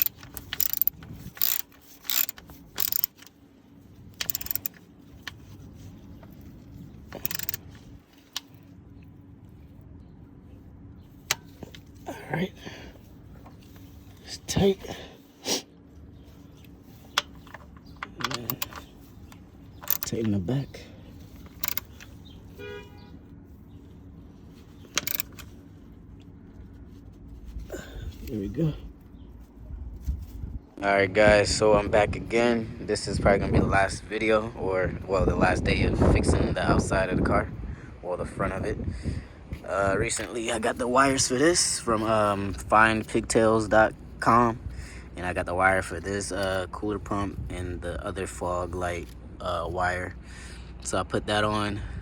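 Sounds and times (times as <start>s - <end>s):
metal hand tools clinking: 0.0s - 3.3s, 7.2s - 7.6s
hand ratchet clicking: 0.0s - 3.4s, 4.2s - 5.4s, 7.1s - 7.7s, 17.2s - 18.8s, 19.8s - 20.2s, 21.4s - 22.1s, 24.9s - 25.4s
faint steady hum: 0.0s - 52.0s.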